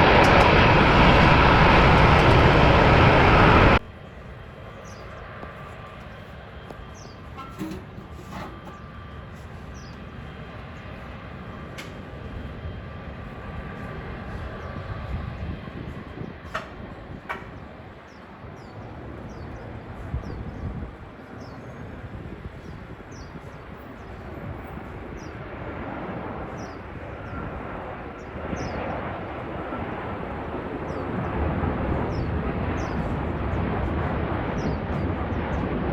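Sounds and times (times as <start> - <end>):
jet engines rumbling: 0.0 - 35.9.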